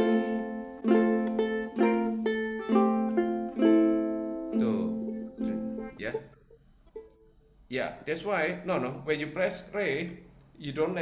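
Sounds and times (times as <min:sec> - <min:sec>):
ukulele notes plucked: 0:00.0 - 0:07.3.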